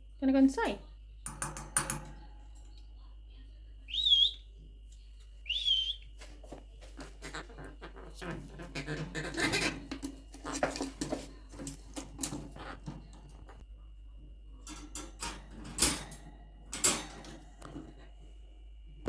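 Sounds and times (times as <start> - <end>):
wire bird cage rattling: 0.6 - 2.8, 8.1 - 13.6, 14.6 - 18.0.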